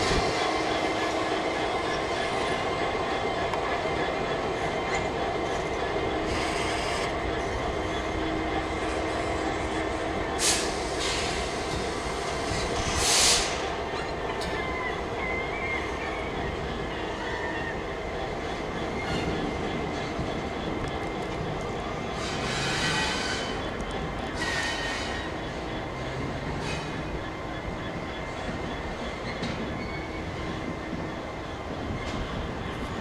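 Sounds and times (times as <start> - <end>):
train rumbling on rails: 0.0 - 33.0.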